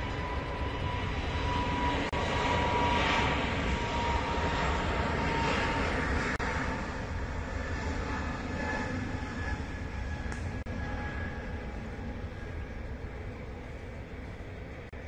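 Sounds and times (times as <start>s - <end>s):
jet engines roaring with whine: 0.0s - 15.0s.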